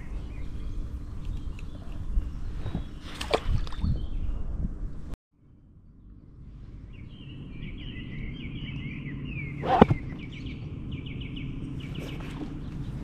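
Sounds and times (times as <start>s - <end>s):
birds singing: 0.0s - 5.0s, 6.0s - 13.0s
steady low rumble: 0.0s - 13.0s.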